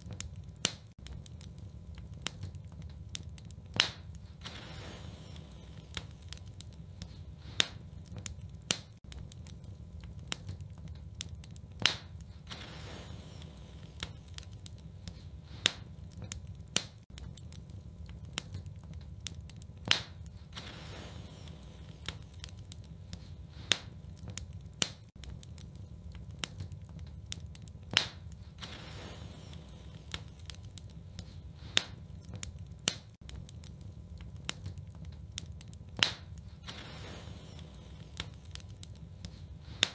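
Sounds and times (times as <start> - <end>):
fire crackling and popping: 0.0 - 39.9
fire low rumble: 0.0 - 39.9.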